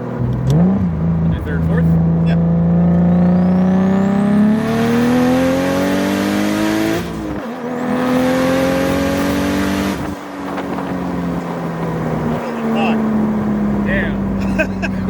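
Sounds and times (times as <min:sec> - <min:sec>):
turbocharged engine revving on dyno: 0:00.4 - 0:10.2.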